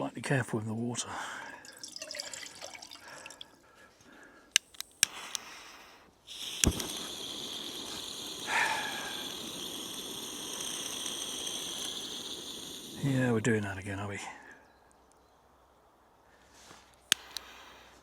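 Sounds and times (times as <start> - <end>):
stove igniter clicks: 4.5 - 13.2, 17.1 - 18.0
gas hissing: 4.5 - 14.0, 17.0 - 18.0.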